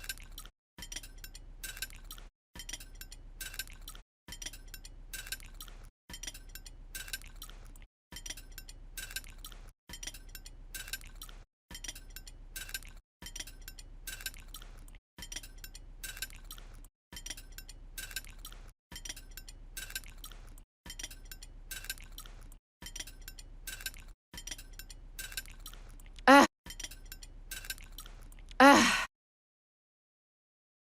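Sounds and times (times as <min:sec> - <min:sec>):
tableware clinking: 0:08.1 - 0:25.8.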